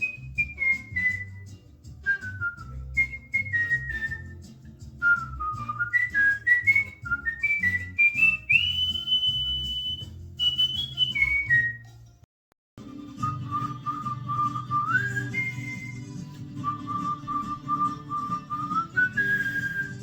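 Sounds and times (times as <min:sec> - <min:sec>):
cockatiel whistling a tune: 0:00.0 - 0:11.9, 0:13.2 - 0:20.0.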